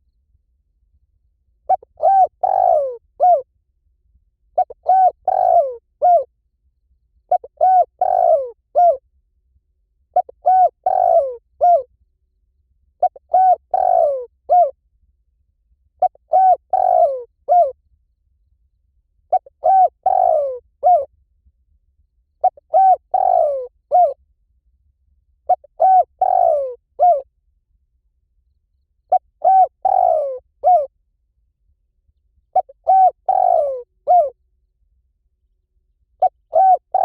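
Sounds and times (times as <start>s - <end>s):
dove cooing: 1.7s - 3.4s, 4.6s - 6.3s, 7.3s - 9.0s, 10.2s - 11.9s, 13.0s - 14.8s, 16.0s - 17.8s, 19.3s - 21.1s, 22.4s - 24.2s, 25.5s - 27.2s, 29.1s - 30.9s, 32.6s - 34.4s, 36.2s - 37.0s.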